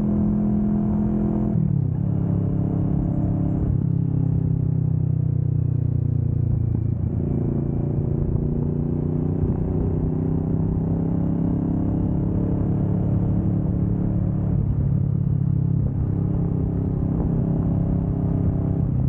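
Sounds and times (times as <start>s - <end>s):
motorcycle engine running: 2.1s - 10.8s.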